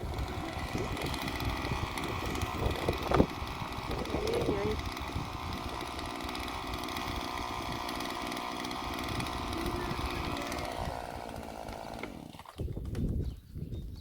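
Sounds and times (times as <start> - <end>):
chainsaw sawing into tree: 0.0 - 12.7.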